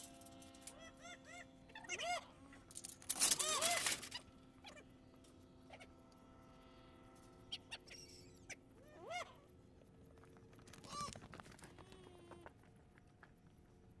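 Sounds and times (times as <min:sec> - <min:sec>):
steady faint hum: 0:00.0 - 0:14.0
faint bird calls: 0:00.7 - 0:09.6.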